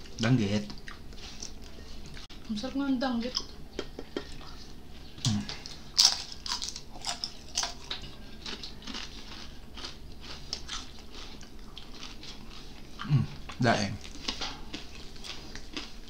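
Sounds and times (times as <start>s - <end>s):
crunching crispy fried fish: 5.5s - 16.0s.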